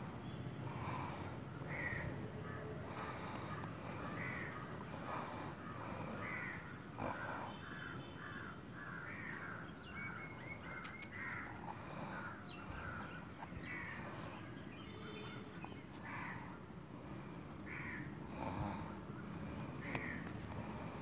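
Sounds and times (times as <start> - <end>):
birds calling: 0.0 - 21.0.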